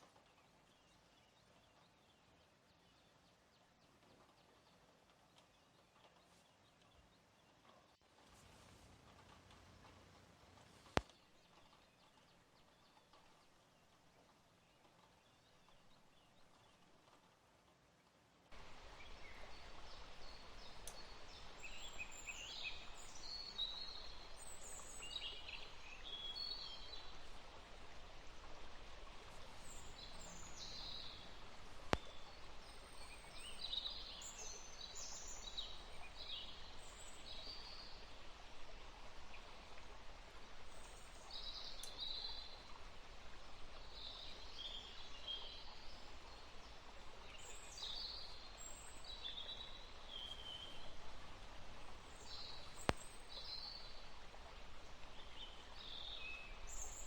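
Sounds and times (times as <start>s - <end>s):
steady rain hiss: 8.1s - 13.6s, 18.4s - 57.0s.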